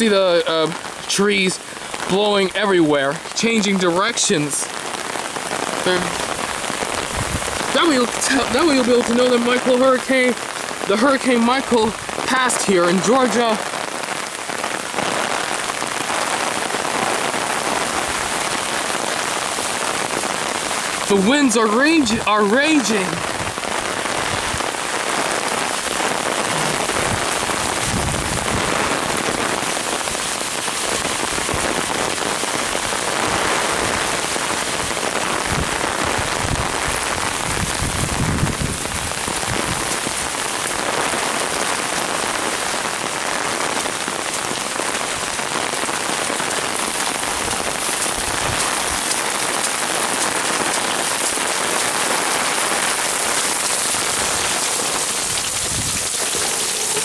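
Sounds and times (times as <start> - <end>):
heavy rain pouring: 0.0 - 57.0
wind gusts rumbling on microphone: 5.4 - 9.2, 23.0 - 30.3, 30.9 - 41.4, 46.7 - 51.1, 53.9 - 57.0
strong wind blowing: 5.8 - 7.8, 23.0 - 24.8, 26.0 - 29.6, 35.4 - 40.2, 55.2 - 57.0.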